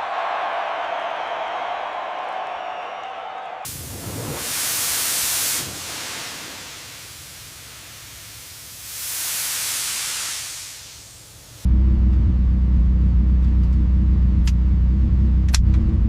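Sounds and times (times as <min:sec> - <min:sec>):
hissing rush of noise: 0:03.7 - 0:11.7.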